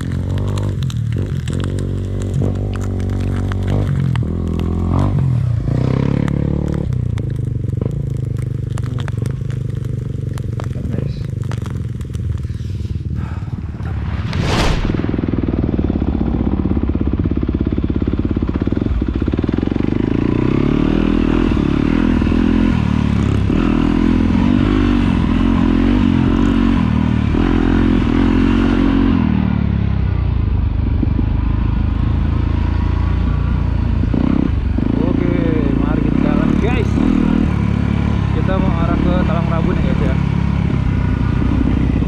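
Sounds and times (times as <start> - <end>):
motorcycle engine running: 0.0 - 14.1, 15.0 - 42.0
short whoosh: 13.2 - 17.0.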